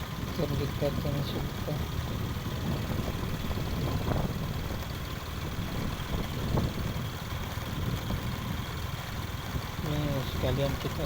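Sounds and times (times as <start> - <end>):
road noise: 0.0 - 11.0
vehicle engine rumble: 0.0 - 11.0.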